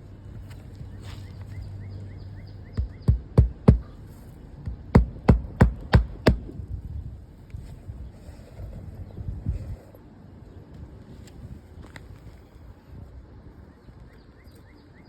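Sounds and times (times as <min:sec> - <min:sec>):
hammer striking nails: 0:02.8 - 0:03.9, 0:05.0 - 0:06.5.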